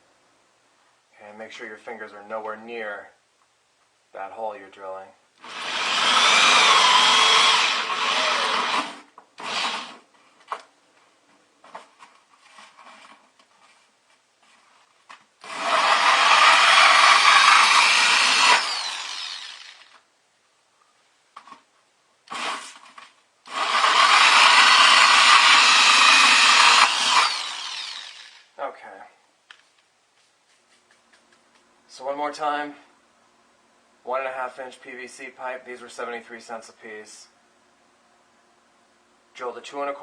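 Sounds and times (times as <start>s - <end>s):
power drill cutting plastic: 5.4s - 10.0s, 15.4s - 20.0s, 22.3s - 22.9s, 23.5s - 28.5s
faint handling sounds: 10.1s - 15.4s, 29.4s - 31.8s
drill trigger blips: 15.4s - 20.0s, 23.5s - 28.4s.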